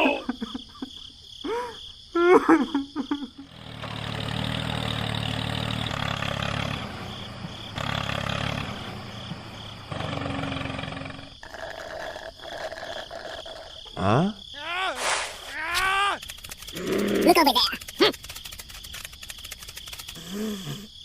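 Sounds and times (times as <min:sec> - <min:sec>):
engine running with low hum: 0:03.4 - 0:11.4.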